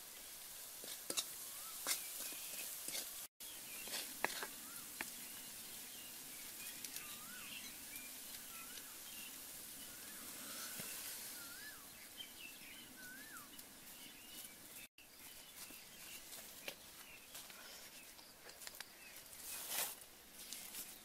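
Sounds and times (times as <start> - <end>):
steady high hiss: 0.0 - 17.1
bird chirps: 3.4 - 19.7.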